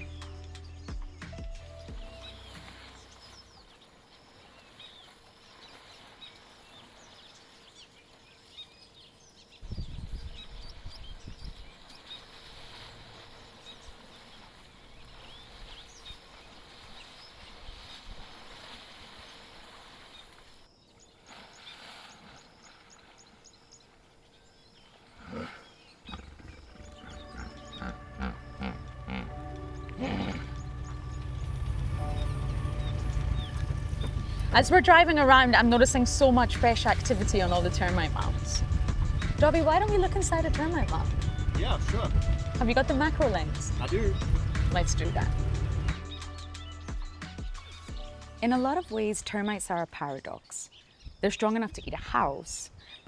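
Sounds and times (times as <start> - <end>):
birds chirping and calling: 0.0 - 3.8, 25.6 - 46.5
low rumble: 26.8 - 46.4.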